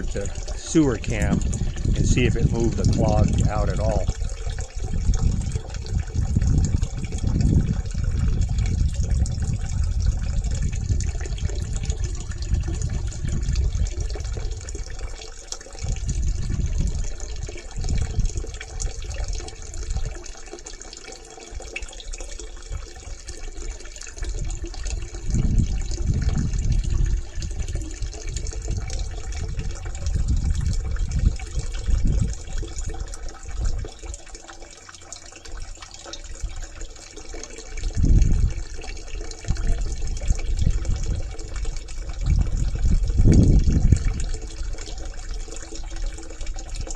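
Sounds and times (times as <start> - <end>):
low rumbles: 0.0 - 14.8
water rushing from pipe: 0.0 - 46.9.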